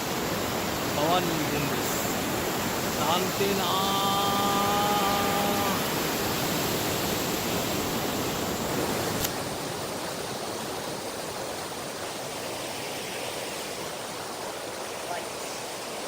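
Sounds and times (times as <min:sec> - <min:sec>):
river water rushing: 0:00.0 - 0:16.0
single click: 0:09.2 - 0:09.4.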